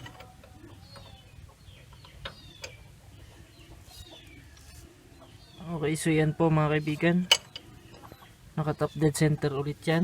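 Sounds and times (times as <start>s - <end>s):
bird chirps: 0.0s - 6.1s.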